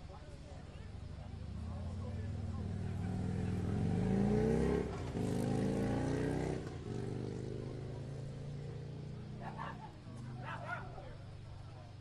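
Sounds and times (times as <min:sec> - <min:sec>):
vehicle engine accelerating: 0:01.5 - 0:09.5.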